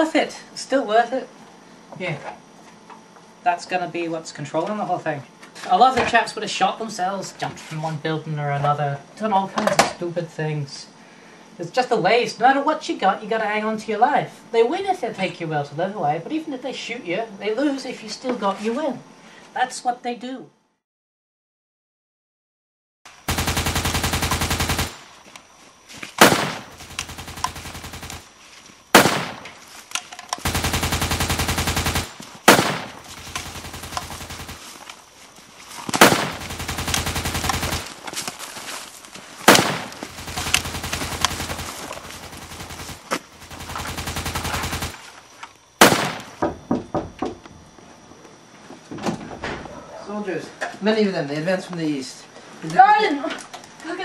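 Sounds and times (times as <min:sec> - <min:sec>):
faint rattling gunfire: 0:23.1 - 0:25.3, 0:26.2 - 0:28.3, 0:28.9 - 0:29.7, 0:30.4 - 0:34.9, 0:35.9 - 0:38.2, 0:39.5 - 0:45.1, 0:45.8 - 0:46.5
machine-gun fire bursts: 0:23.2 - 0:25.2, 0:26.2 - 0:28.3, 0:28.9 - 0:29.6, 0:30.4 - 0:34.8, 0:35.9 - 0:38.0, 0:39.4 - 0:45.1, 0:45.8 - 0:46.4
loud gunshot bangs: 0:26.2 - 0:26.9, 0:28.9 - 0:29.6, 0:30.5 - 0:34.6, 0:36.0 - 0:37.9, 0:39.5 - 0:41.8, 0:45.8 - 0:46.4.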